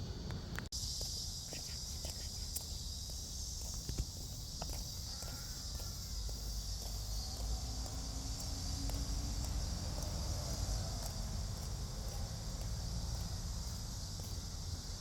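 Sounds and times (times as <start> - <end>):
continuous low rumble: 0.0 - 1.1, 6.5 - 15.0
cicadas buzzing: 0.1 - 15.0.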